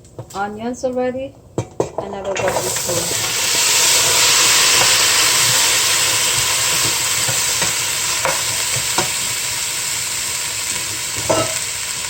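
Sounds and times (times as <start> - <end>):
onions sizzling in oil: 1.6 - 12.0
utensil knocking against pot: 11.3 - 11.6.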